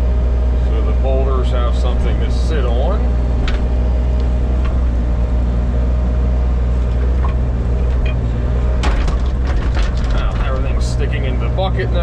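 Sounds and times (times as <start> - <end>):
excavator diesel engine running: 0.0 - 12.0
knocks: 8.8 - 10.8.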